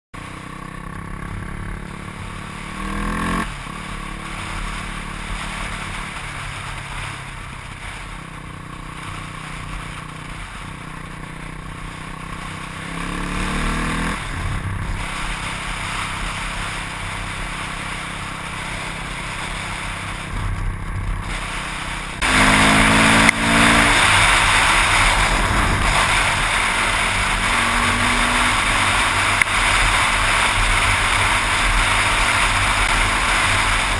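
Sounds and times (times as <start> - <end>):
dirt bike engine revving: 0.2 - 33.9
wind rush over microphone: 18.9 - 33.9.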